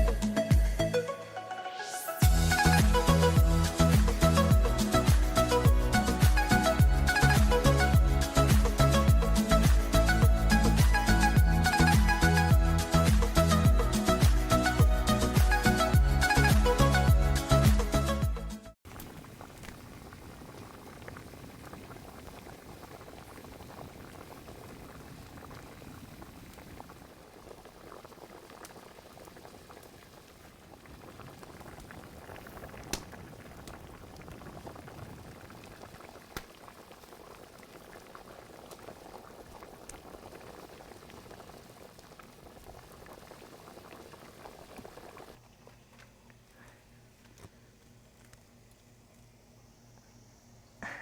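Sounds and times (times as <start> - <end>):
stew bubbling in a pot: 2.2 - 15.7, 18.9 - 45.4.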